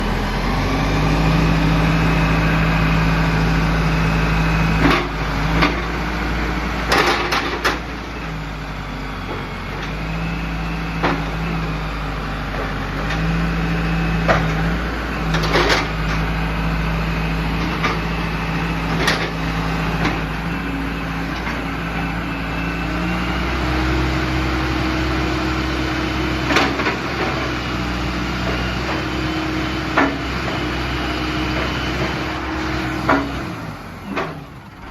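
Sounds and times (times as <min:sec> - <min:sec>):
diesel engine running under load: 0:00.0 - 0:34.9
sharp knocks and clanks: 0:29.9 - 0:30.7, 0:33.0 - 0:33.5.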